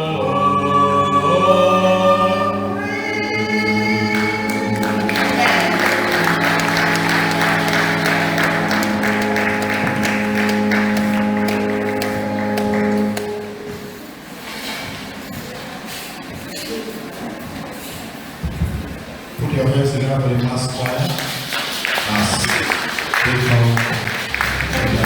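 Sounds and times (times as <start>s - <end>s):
choir singing held chords: 0.0s - 14.1s, 24.3s - 25.0s
audience applause: 4.0s - 13.5s, 20.8s - 25.0s.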